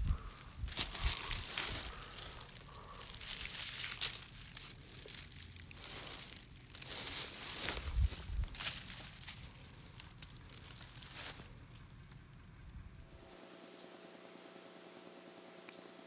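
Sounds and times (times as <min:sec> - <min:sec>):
dry material rustling and crunching: 0:00.0 - 0:12.5.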